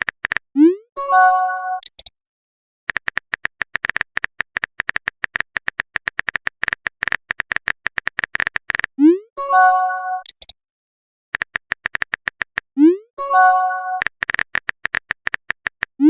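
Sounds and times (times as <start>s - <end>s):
rapid keyboard tap clicks: 0.0s - 0.5s, 2.9s - 8.9s, 11.4s - 12.7s, 14.0s - 16.0s
phone notification chime: 13.2s - 14.0s.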